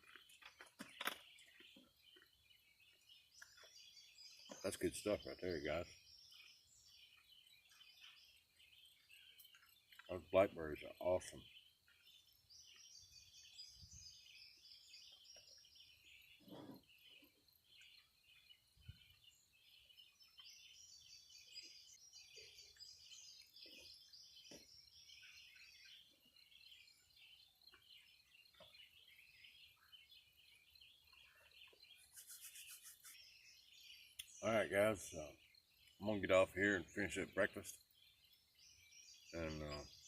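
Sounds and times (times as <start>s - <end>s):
faint birds chirping: 0.0s - 40.0s.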